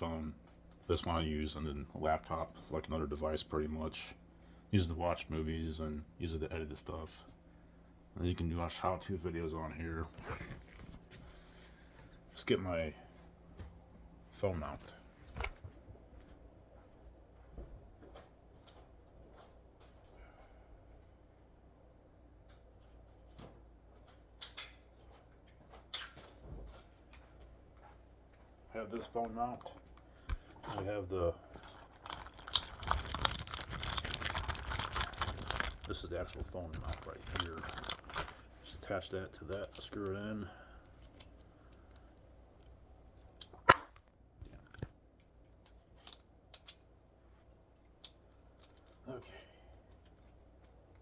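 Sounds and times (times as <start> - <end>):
loud plastic snap: 43.4 - 44.1.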